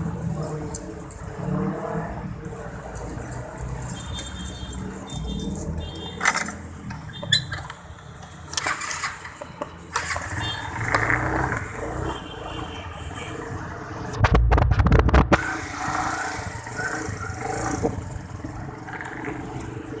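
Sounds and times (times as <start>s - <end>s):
motorcycle engine starting: 8.5s - 11.8s.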